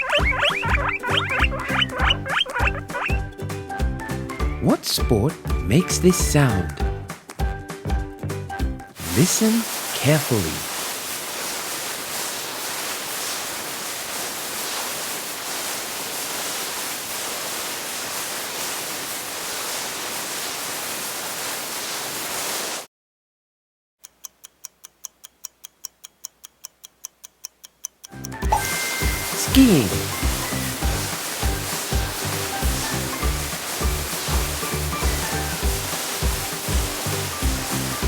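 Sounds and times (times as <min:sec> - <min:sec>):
skis hissing over snow: 0:00.0 - 0:03.2, 0:09.0 - 0:22.9, 0:28.5 - 0:38.0
countdown clock ticking: 0:24.0 - 0:30.6.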